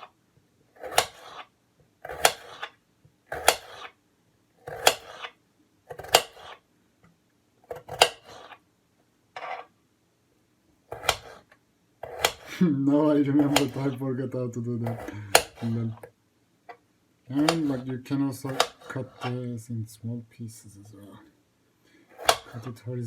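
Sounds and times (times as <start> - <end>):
knife cutting potato on board: 0.0 - 4.0, 4.6 - 6.7, 7.6 - 8.6, 10.9 - 12.6, 13.3 - 14.0, 14.8 - 16.2, 17.4 - 19.4, 22.1 - 22.8.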